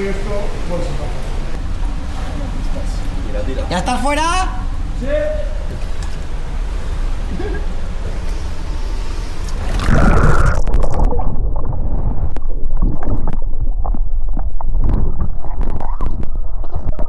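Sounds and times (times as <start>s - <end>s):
rushing water: 0.0s - 17.0s
underwater gurgling and sloshing: 5.6s - 17.0s.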